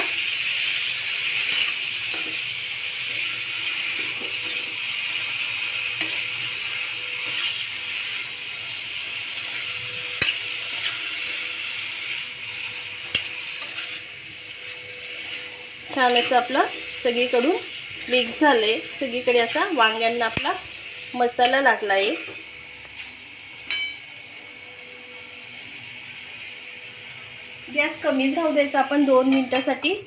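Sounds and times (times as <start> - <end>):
vegetables sizzling in oil: 0.0 - 30.0
metal spoon scraping a pan: 1.3 - 4.7, 5.9 - 8.3, 9.4 - 20.7, 29.0 - 29.8
spoon clinking against pan: 23.6 - 24.0.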